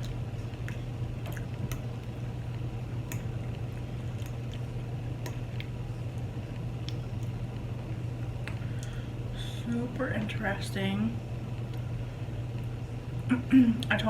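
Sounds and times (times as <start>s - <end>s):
quiet chewing: 0.0s - 7.7s
steady low hum: 0.0s - 14.0s
mouth eating clicks: 5.2s - 7.4s.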